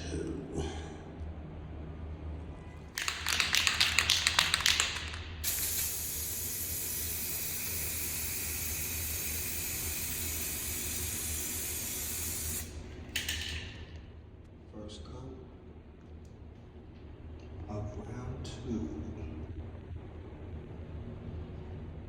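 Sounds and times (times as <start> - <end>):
spray can rattling: 2.9 - 14.0
spray paint hissing: 3.0 - 13.8.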